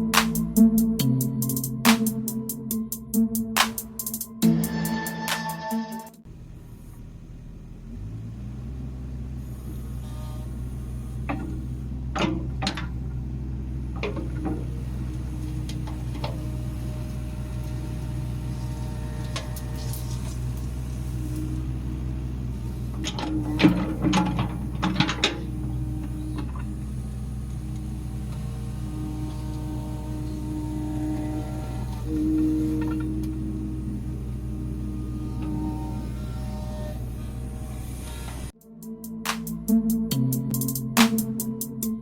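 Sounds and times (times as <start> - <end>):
excavator diesel engine running: 0.0 - 42.0
metallic clanks and knocks: 11.2 - 16.6, 22.9 - 26.8.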